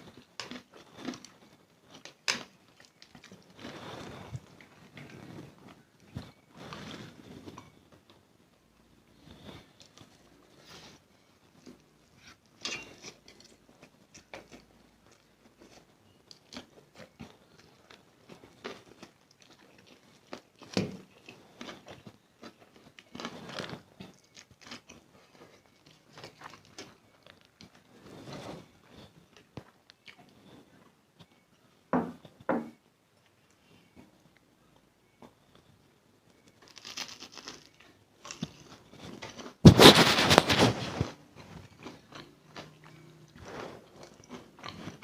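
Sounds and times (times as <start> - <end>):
person chewing noodles: 0.0 - 5.2, 13.4 - 27.8, 41.2 - 45.0.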